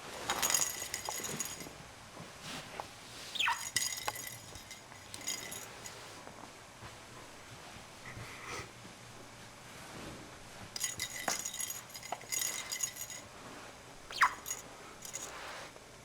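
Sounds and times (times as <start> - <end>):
bell jingling in toy ball: 0.1 - 1.8, 3.4 - 6.2, 10.8 - 13.3, 14.1 - 15.6
sharp falling squeak: 3.3 - 3.9, 14.1 - 14.6.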